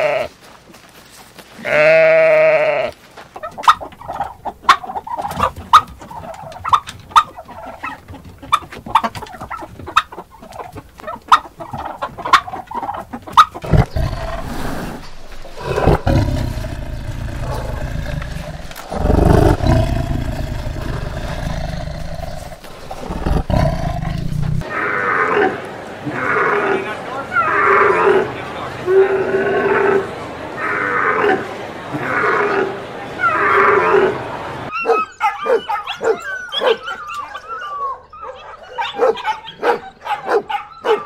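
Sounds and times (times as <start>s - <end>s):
turkey clucking: 3.4s - 14.0s
tiger growling: 13.6s - 26.8s.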